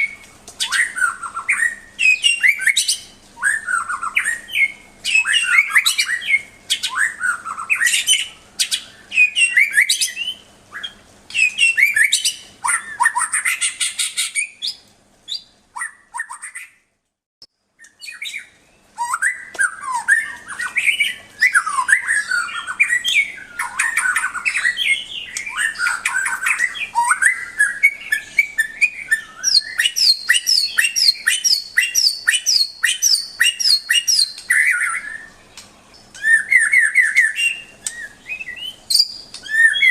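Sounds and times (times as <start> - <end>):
bird singing whistled phrases: 0.0 - 16.8, 17.8 - 39.9.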